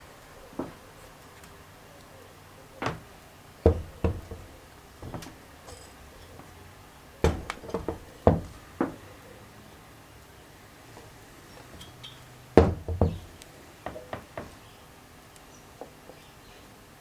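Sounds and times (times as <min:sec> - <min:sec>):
knocks and clacks of engine parts: 0:00.6 - 0:00.8, 0:02.8 - 0:06.6, 0:07.2 - 0:09.1, 0:11.0 - 0:14.7.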